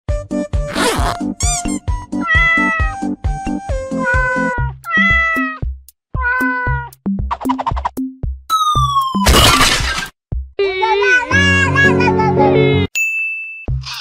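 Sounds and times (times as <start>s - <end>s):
cat meowing: 2.2s - 3.0s, 3.9s - 5.6s, 6.2s - 7.0s.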